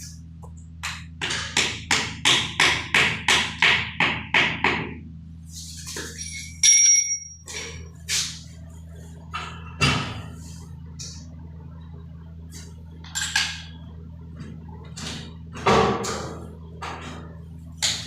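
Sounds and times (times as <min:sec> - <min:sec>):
steady low hum: 0:00.0 - 0:18.0
metal clink ringing: 0:06.2 - 0:07.5.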